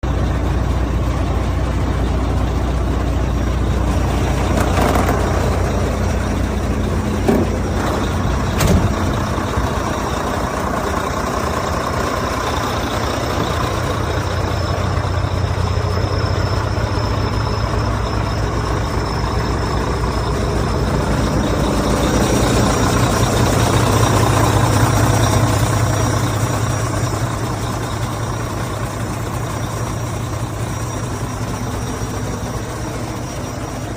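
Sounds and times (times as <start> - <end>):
diesel truck engine running: 0.0 - 33.9.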